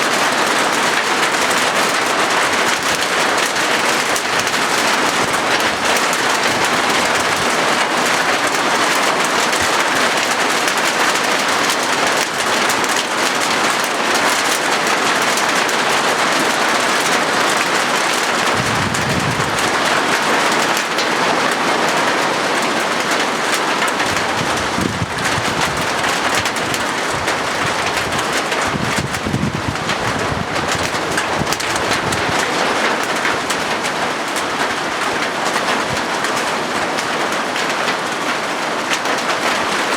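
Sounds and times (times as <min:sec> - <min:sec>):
rain on a metal roof: 0:00.0 - 0:39.9
low rumble: 0:18.5 - 0:19.6.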